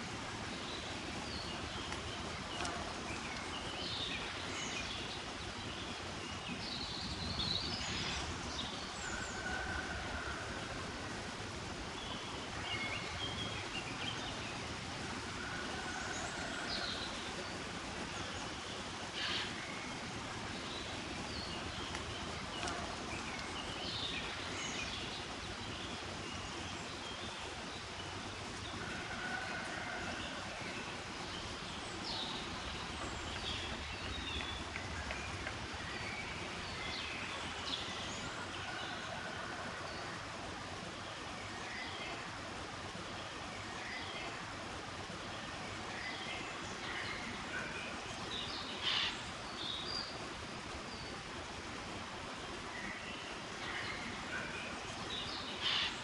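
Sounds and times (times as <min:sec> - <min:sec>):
outdoor background noise: 0:00.0 - 0:56.0
small birds chirping: 0:16.7 - 0:28.8, 0:30.7 - 0:38.4.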